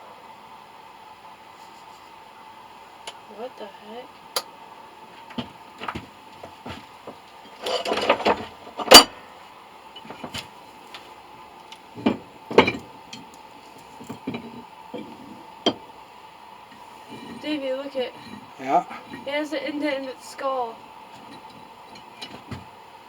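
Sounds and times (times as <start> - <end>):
faint steady hum: 0.0 - 23.0
rattling scuffle: 5.2 - 9.1, 10.0 - 10.6, 11.9 - 13.0.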